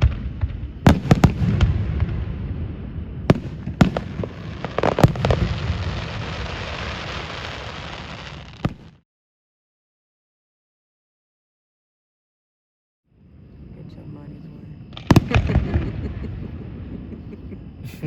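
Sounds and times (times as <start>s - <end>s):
firework booms: 0.0s - 9.0s, 14.9s - 17.4s
firework crackling hiss: 3.3s - 9.0s.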